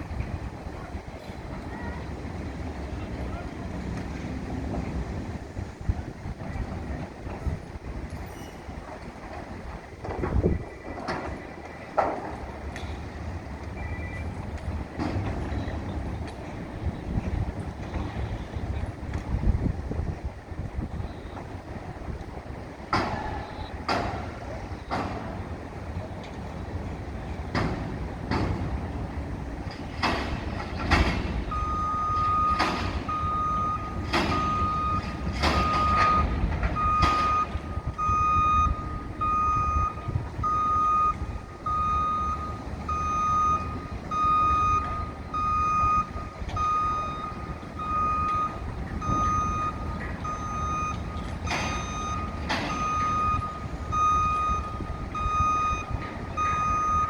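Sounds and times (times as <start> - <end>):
low engine rumble: 0.0 - 57.0
reversing alarm beeping: 13.6 - 14.6, 23.0 - 24.2, 30.0 - 57.0.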